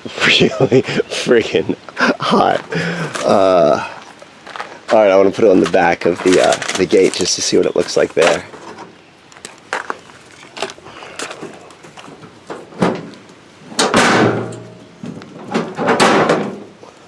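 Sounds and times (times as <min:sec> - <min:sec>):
rustling: 0:02.4 - 0:13.4.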